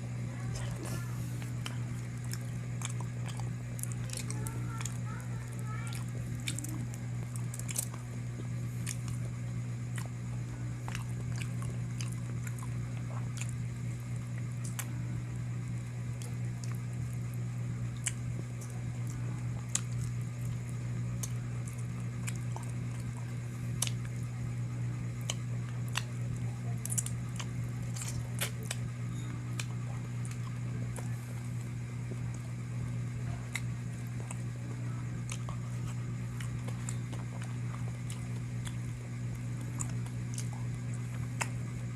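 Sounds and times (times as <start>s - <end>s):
steady low hum: 0.0s - 41.9s
chewing and biting food: 0.4s - 15.2s, 16.0s - 41.9s
wet mouth clicks: 26.8s - 28.9s, 33.5s - 34.4s, 39.6s - 41.6s.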